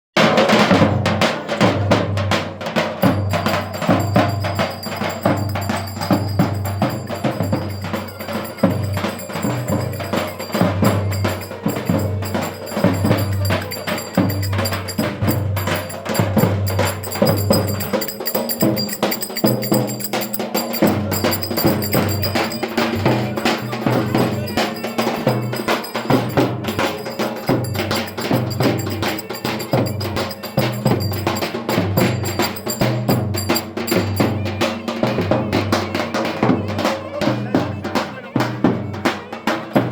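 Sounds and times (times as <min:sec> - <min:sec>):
driving drum beat: 0:00.2 - 0:39.9
percussion strokes: 0:02.7 - 0:36.5
folk dance music: 0:03.1 - 0:34.3.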